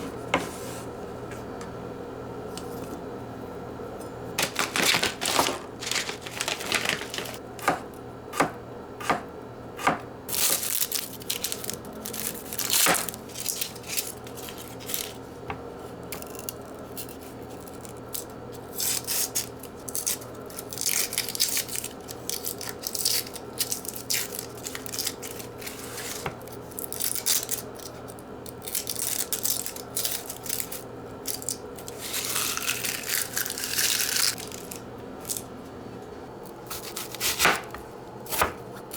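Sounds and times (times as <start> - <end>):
crinkling and scraping: 4.4 - 7.4.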